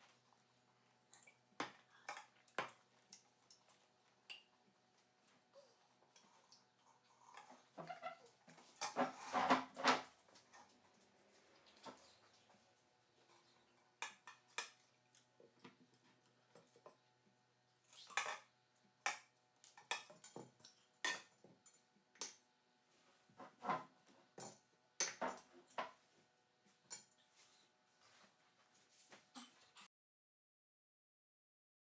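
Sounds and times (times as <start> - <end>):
dishes and cutlery clinking: 7.2 - 10.7, 13.4 - 15.8, 18.0 - 22.4, 23.4 - 26.0.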